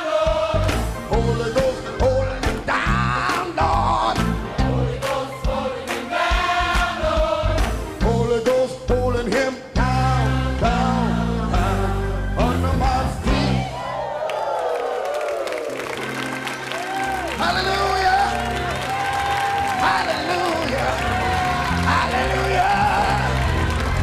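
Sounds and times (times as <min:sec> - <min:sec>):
gospel singing voices: 0:00.0 - 0:14.1, 0:19.0 - 0:24.0
band with bass and drums: 0:00.2 - 0:13.8.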